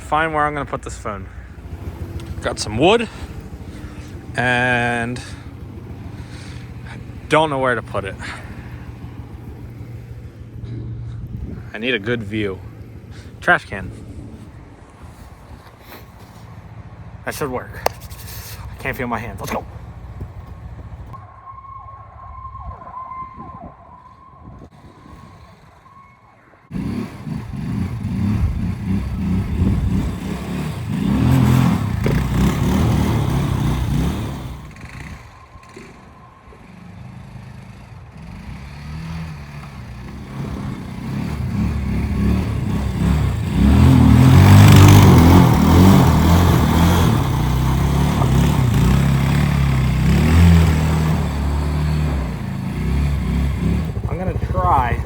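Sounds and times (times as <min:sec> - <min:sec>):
quad bike engine revving: 0:00.0 - 0:14.4, 0:26.7 - 0:55.0.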